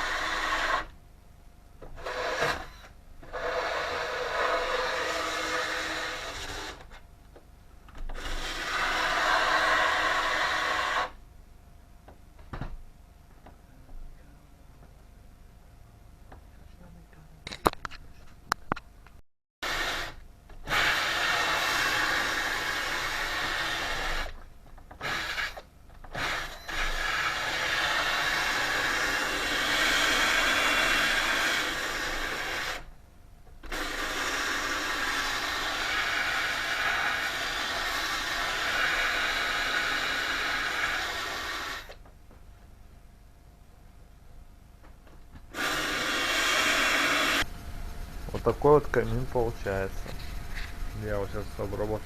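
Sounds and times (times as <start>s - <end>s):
power tool whirring: 0.0s - 1.0s, 1.8s - 7.0s, 8.0s - 11.2s, 19.6s - 32.9s, 33.6s - 42.0s, 45.5s - 47.5s.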